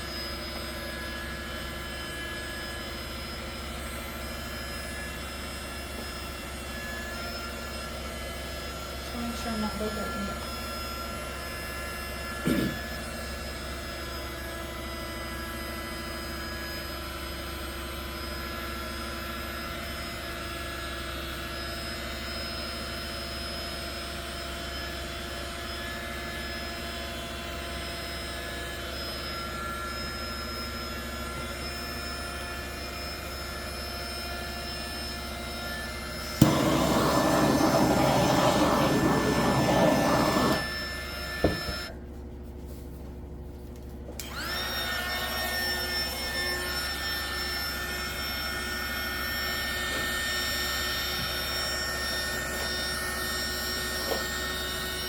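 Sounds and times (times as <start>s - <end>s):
electric air blower whining: 0.0s - 13.8s, 29.4s - 42.0s, 44.2s - 55.0s.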